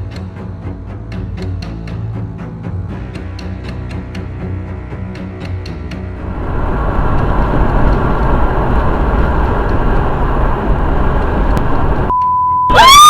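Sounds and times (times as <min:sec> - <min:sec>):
vehicle engine and road noise: 0:05.7 - 0:12.1
short high beep: 0:12.1 - 0:13.0.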